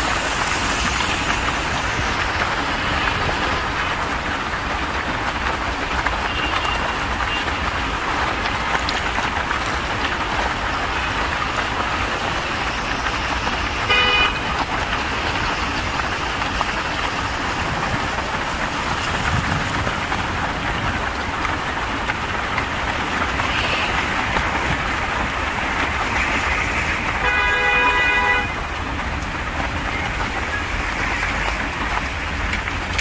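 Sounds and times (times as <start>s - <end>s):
car traffic on wet road: 0.0s - 33.0s
rain hissing: 0.0s - 33.0s.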